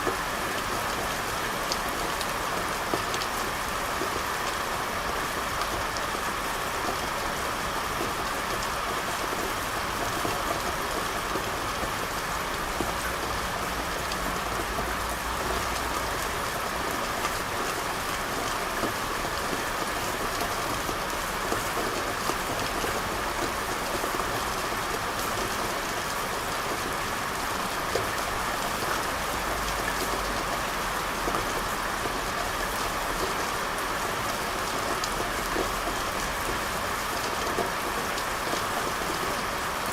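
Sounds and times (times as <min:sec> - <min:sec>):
steady rain on street: 0:00.0 - 0:39.9.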